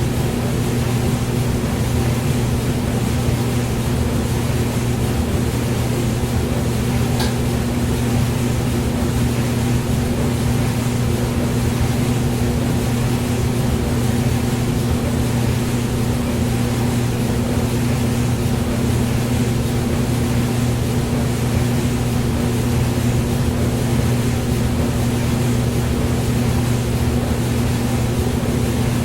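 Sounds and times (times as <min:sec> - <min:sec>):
hair dryer running: 0:06.8 - 0:07.8.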